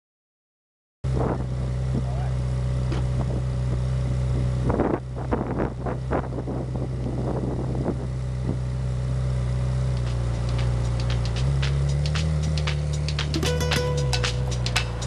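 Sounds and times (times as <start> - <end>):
car engine idling: 1.1 - 15.0
wind noise on microphone: 4.4 - 8.6.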